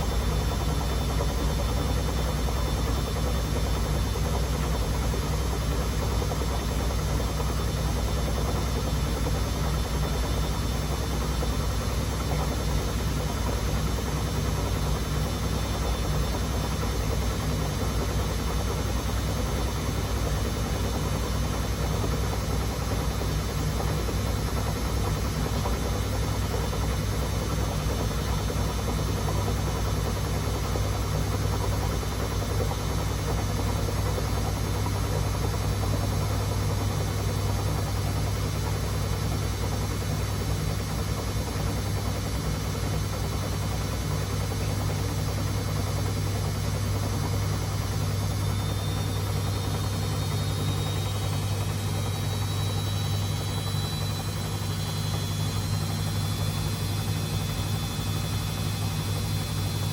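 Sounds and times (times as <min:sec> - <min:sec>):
washing machine drum spinning: 0:00.0 - 0:59.9.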